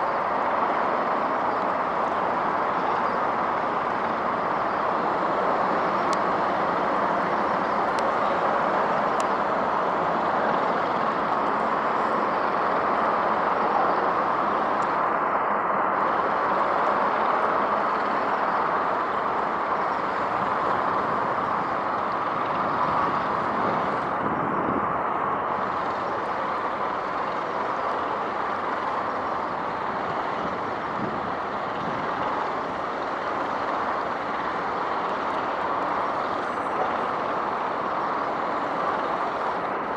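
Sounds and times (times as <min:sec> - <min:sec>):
road traffic rushing: 0:00.0 - 0:39.9.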